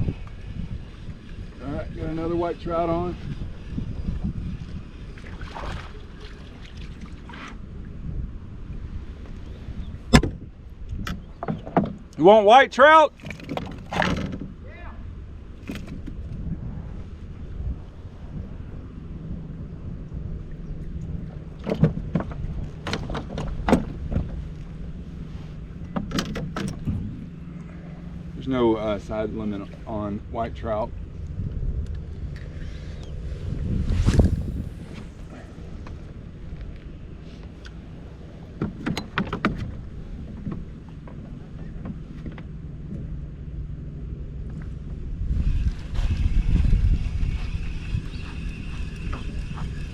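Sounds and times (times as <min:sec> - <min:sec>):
wind on microphone: 0:00.0 - 0:12.0, 0:13.4 - 0:49.9
water noise: 0:00.0 - 0:49.9
steady low hum: 0:14.4 - 0:49.9.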